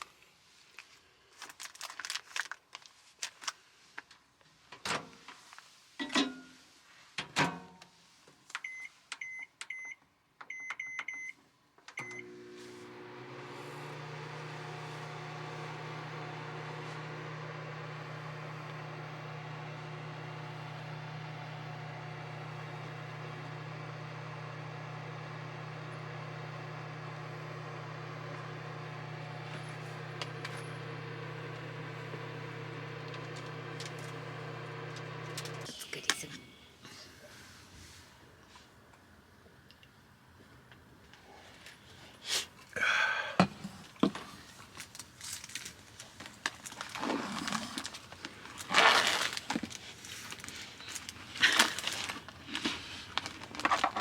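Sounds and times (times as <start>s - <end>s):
appliance hum and fan: 12.0s - 35.8s.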